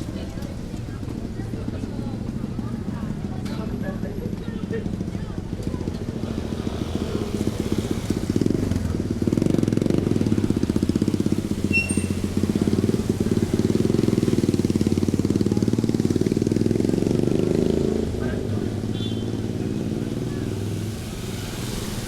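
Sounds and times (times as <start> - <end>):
small engine puttering: 4.9 - 16.2
short high chirp: 11.7 - 12.3.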